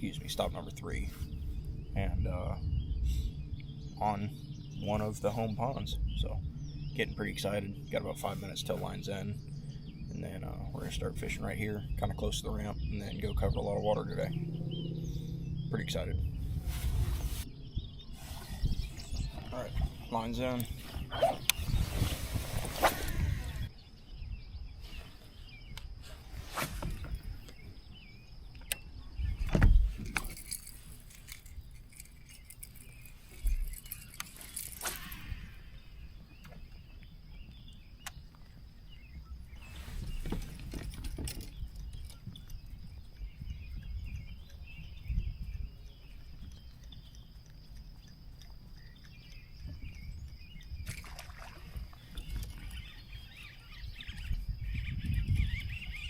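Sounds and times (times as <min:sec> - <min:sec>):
low steady rumble: 0:00.0 - 0:24.8
fishing gear knocking and rattling: 0:29.5 - 0:35.1, 0:40.1 - 0:43.0.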